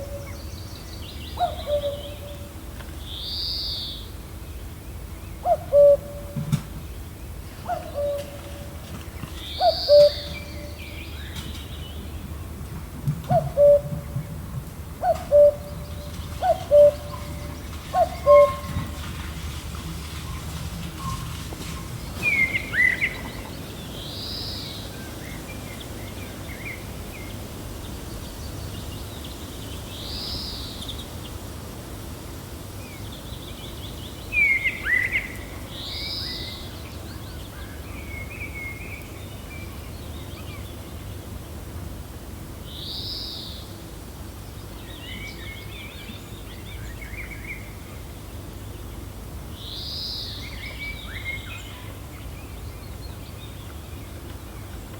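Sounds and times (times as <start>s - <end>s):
wild birds calling: 0.0s - 4.1s, 4.9s - 12.6s, 13.2s - 31.8s
steady low wind: 0.0s - 54.9s.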